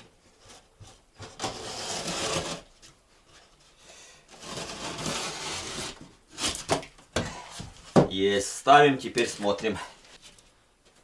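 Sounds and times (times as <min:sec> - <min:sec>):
knife scratching gypsum board: 0:04.4 - 0:06.8.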